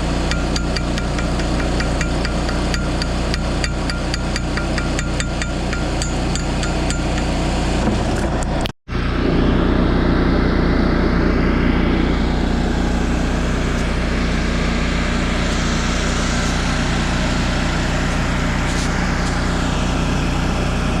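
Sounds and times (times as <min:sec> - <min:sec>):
engine running steadily: 0:00.0 - 0:21.0
sharp evenly spaced taps: 0:00.3 - 0:07.4.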